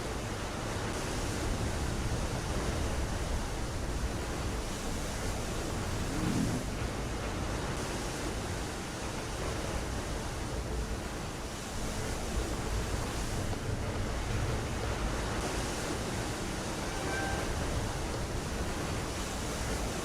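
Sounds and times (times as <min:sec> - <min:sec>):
rushing sea water: 0:00.0 - 0:20.0
faint high tones: 0:16.8 - 0:17.8.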